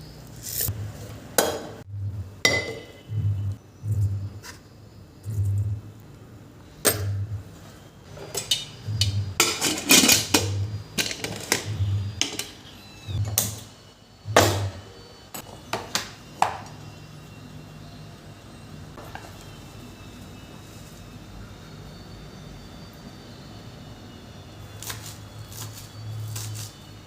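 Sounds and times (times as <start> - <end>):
dishes and utensils clinking: 8.2 - 12.6.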